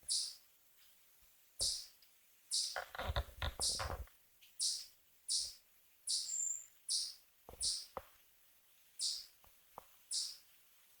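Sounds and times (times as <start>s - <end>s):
small bird chirping: 0.0s - 0.9s, 1.6s - 8.0s, 9.0s - 9.4s, 10.0s - 10.5s.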